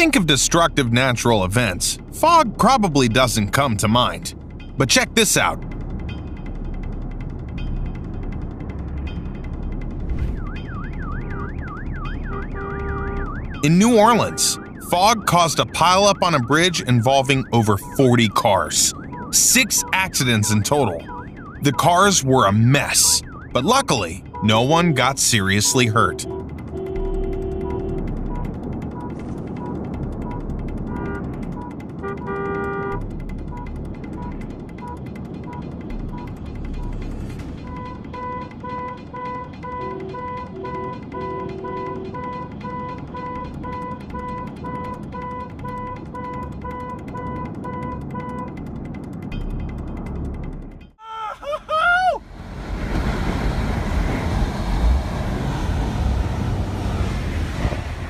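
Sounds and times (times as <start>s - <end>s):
rapid clicking: 4.0s - 13.6s, 26.2s - 51.0s
car horn: 11.0s - 15.4s, 24.0s - 37.0s, 37.6s - 48.6s
person calling out: 51.0s - 52.2s
wind buffeting microphone: 52.2s - 58.0s.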